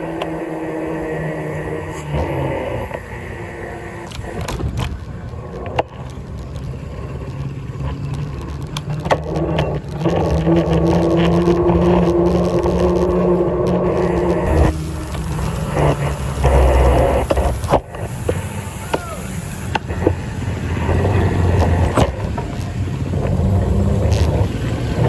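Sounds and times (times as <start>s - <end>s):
road noise: 0.0s - 25.0s
vehicle engine drone: 0.0s - 25.0s
sharp clicks and knocks: 7.8s - 25.0s.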